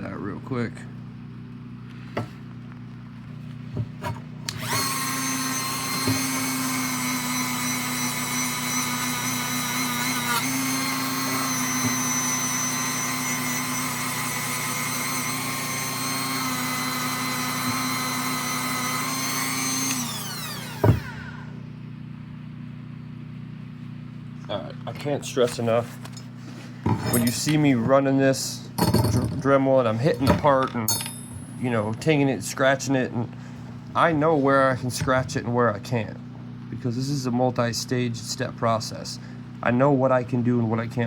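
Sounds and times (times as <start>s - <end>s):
rotary tool grinding metal: 4.0s - 21.5s, 26.8s - 27.6s.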